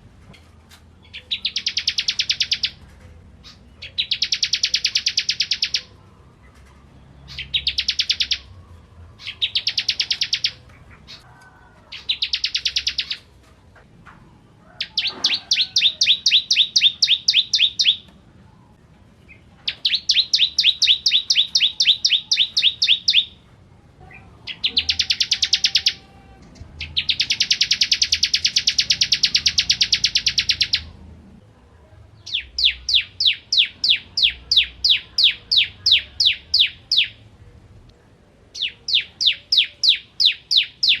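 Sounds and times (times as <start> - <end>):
prinia singing high notes: 19.7 - 23.4, 24.0 - 31.0.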